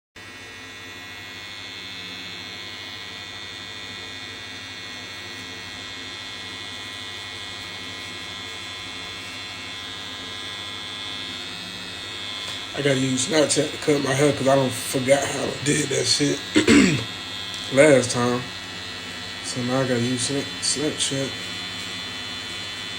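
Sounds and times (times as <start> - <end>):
electric hair clippers buzzing: 0.2 - 22.9.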